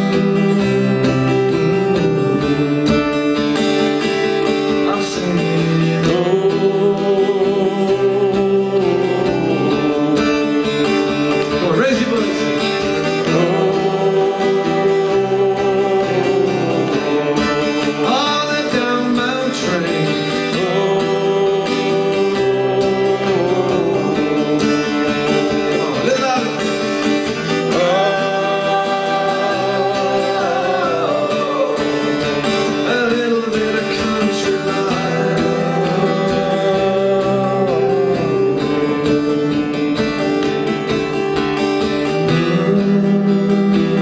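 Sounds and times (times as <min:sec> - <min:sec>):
acoustic guitar strumming: 0:00.0 - 0:44.0
person singing long notes: 0:04.8 - 0:10.9, 0:13.0 - 0:40.0.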